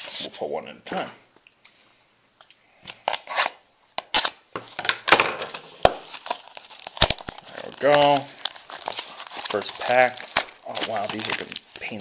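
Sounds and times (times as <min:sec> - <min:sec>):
card packs rustling: 0:05.1 - 0:12.0.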